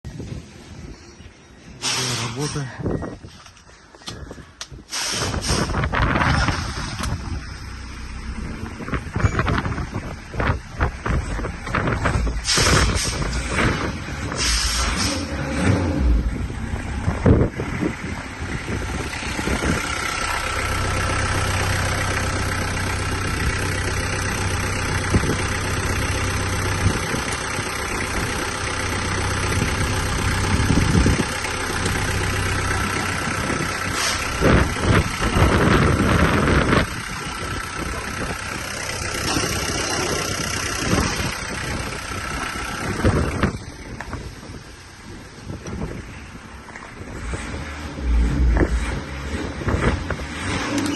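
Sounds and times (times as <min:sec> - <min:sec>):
diesel engine idling: 0:00.1 - 0:50.9
short loud noises: 0:01.8 - 0:02.8.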